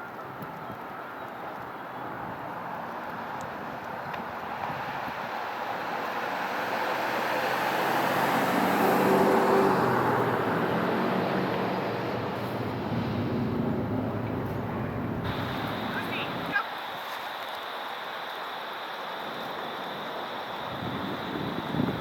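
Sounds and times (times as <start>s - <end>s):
motor vehicle passing by: 3.1s - 16.6s.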